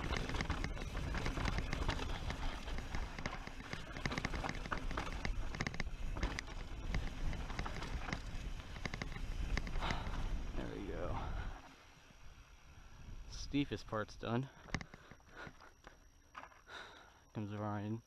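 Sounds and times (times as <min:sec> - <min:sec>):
mountain bike clattering on rocks: 0:00.0 - 0:10.1
wind rumble on microphone: 0:00.0 - 0:13.7.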